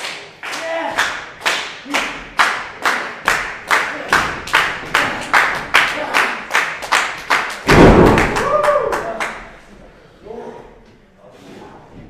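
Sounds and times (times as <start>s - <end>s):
crowd clapping in unison: 0.0s - 9.6s.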